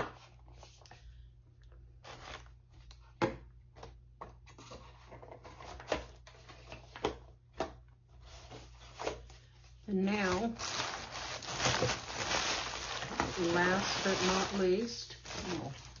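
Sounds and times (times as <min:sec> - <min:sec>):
soft rustling of packaging: 0:08.1 - 0:16.0.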